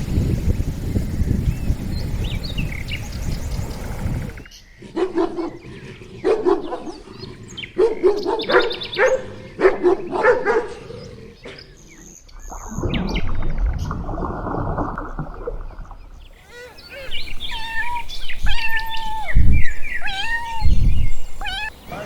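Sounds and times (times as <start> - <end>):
faint chirps: 0.0 - 4.5, 16.3 - 22.0
low rumbling noise: 0.0 - 4.5
animal barking: 4.8 - 11.7, 16.4 - 22.0.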